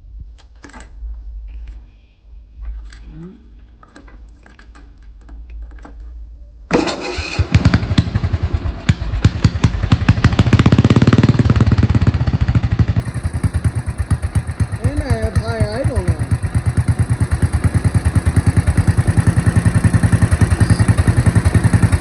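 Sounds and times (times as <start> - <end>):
small engine running: 7.0 - 22.0.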